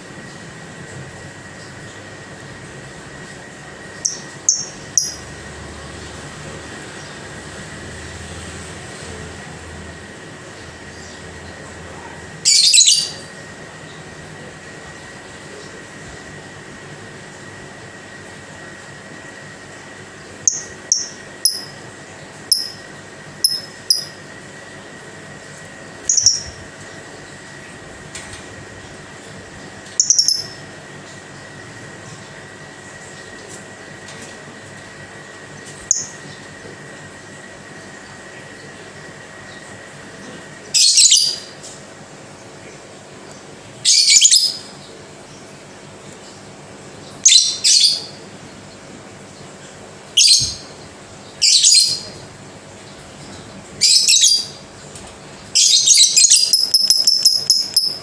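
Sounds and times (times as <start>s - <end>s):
lovebird shrill chattering calls: 12.4s - 13.2s, 23.4s - 24.2s, 26.1s - 26.6s, 30.0s - 30.6s, 55.6s - 58.0s
bird chirping: 12.5s - 13.2s, 22.5s - 22.8s, 23.4s - 24.2s, 26.1s - 26.6s, 30.0s - 30.6s, 55.6s - 58.0s.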